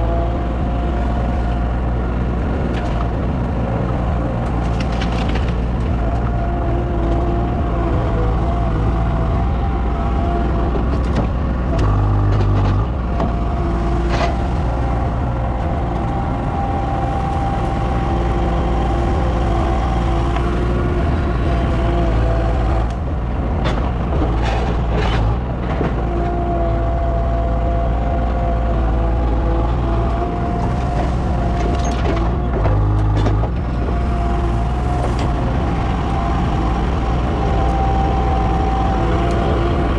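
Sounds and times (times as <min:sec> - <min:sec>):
large engine running: 0:00.0 - 0:39.9.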